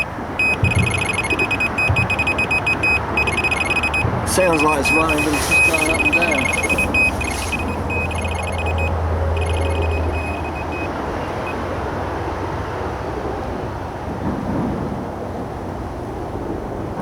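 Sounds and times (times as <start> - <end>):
bite alarm high-pitched beeps: 0.0 - 11.6
road traffic noise: 0.0 - 17.0.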